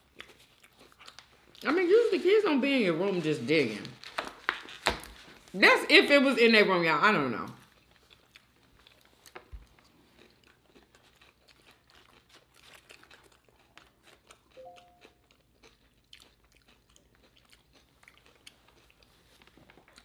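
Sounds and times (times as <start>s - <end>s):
crunching and chewing: 0.0s - 1.7s, 7.6s - 20.0s
faint two-note tone: 14.6s - 15.0s.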